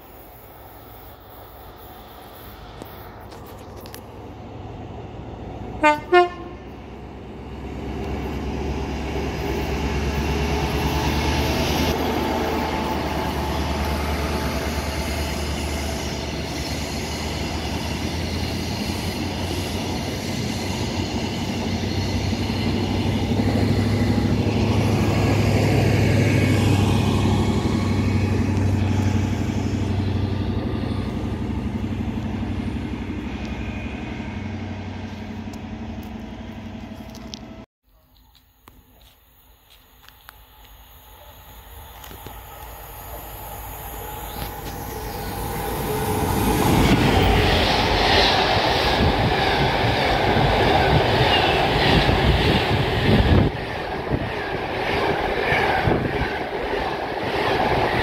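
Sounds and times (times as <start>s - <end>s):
train wheel and rail noise: 0.0s - 58.0s
diesel engine rumble: 2.1s - 37.7s
train horn blasts: 5.8s - 6.8s.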